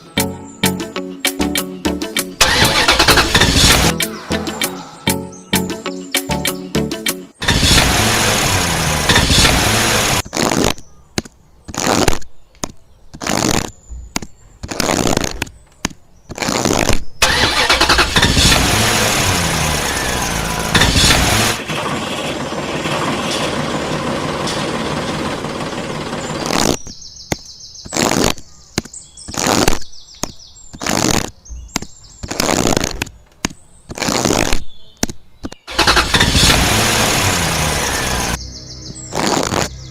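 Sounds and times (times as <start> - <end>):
engine running in short bursts: 2.4 - 4.0, 7.4 - 10.2, 17.2 - 26.8, 35.7 - 38.4.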